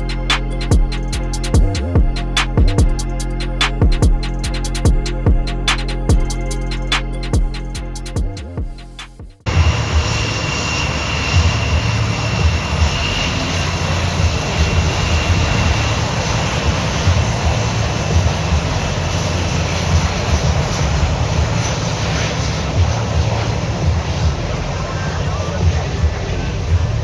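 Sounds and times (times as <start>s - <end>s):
jet engine roar: 9.5s - 27.0s.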